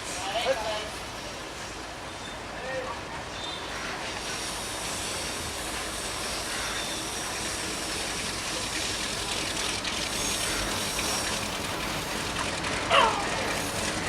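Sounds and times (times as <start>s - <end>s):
train wheels rushing on rails: 0.0s - 14.0s
faint wheel squeals: 3.3s - 3.8s.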